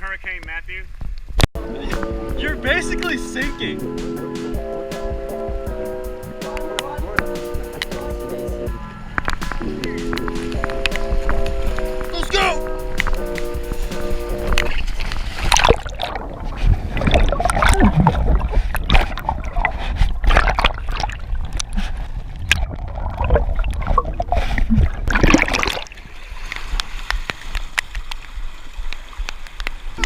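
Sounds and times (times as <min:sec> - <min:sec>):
low water rumble: 0:01.6 - 0:30.0
water splashing around kayak: 0:01.6 - 0:30.0.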